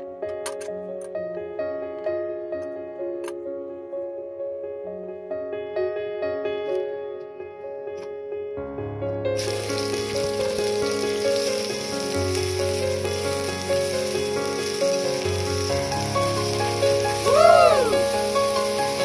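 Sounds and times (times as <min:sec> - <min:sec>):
background music: 0:00.0 - 0:19.0
onion sizzling in hot oil: 0:09.4 - 0:19.0.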